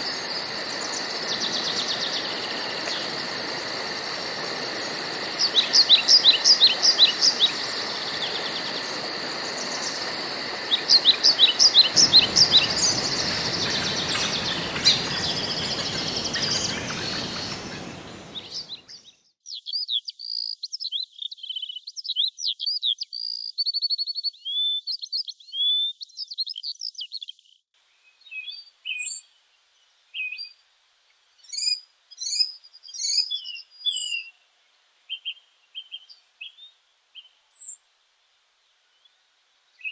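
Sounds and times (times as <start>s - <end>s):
high insect trill: 0.0s - 18.8s
steady hiss: 0.0s - 18.8s
birds chirping: 0.0s - 19.2s.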